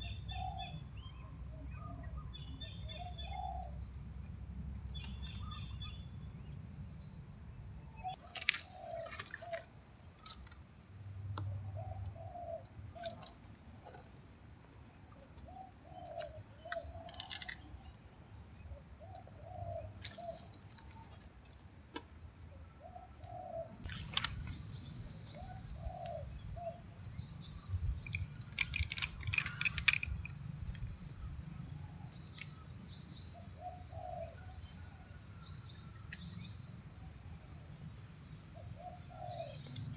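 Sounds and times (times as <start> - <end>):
insects droning: 0.0 - 39.9
doves cooing: 8.1 - 10.4, 11.5 - 14.1, 15.4 - 17.9, 19.0 - 21.2, 22.8 - 24.4, 25.3 - 26.8, 33.6 - 35.0, 38.6 - 39.9
sharp clicks: 16.2 - 17.7, 28.1 - 30.4.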